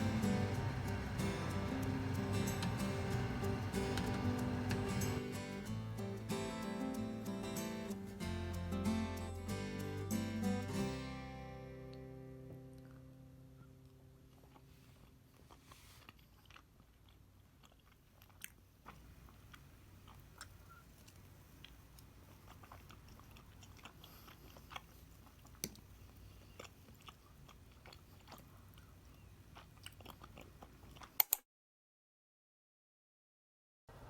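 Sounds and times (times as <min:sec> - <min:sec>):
chewing and biting food: 0:13.8 - 0:31.4.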